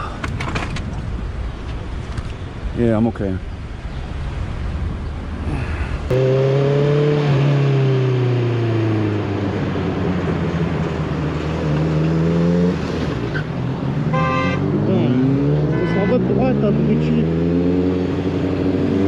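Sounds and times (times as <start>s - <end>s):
low wind: 0.0s - 19.0s
road rumble: 0.0s - 19.0s
motorcycle engine running: 6.1s - 7.2s.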